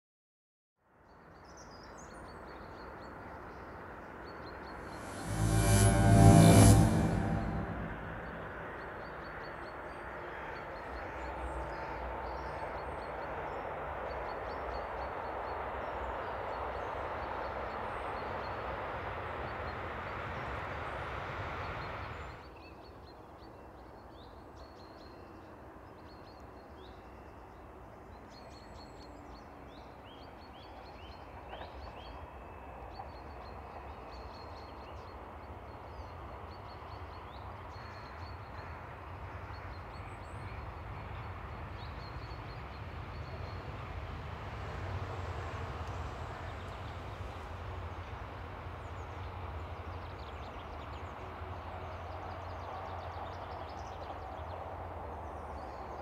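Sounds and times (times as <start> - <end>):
freight train rumbling past: 4.8 - 9.4, 38.6 - 56.0
passenger train approaching: 4.8 - 22.1, 38.4 - 56.0.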